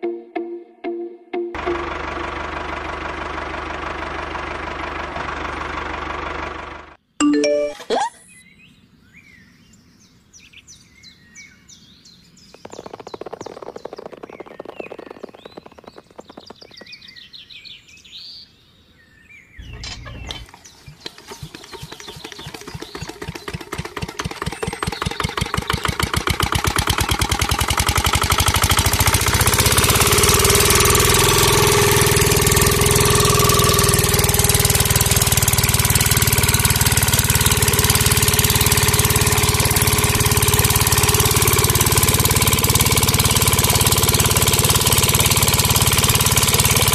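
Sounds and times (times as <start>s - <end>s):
small engine starting and running: 1.6s - 7.0s, 12.5s - 17.5s, 19.6s - 46.9s
birds chirping: 7.2s - 29.8s, 33.2s - 46.9s.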